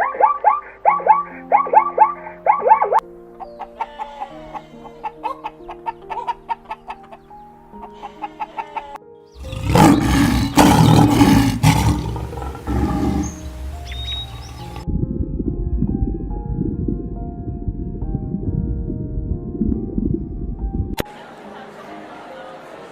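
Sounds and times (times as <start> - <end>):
soft music with plucked notes: 0.0 - 22.9
harsh animal call: 8.1 - 14.8.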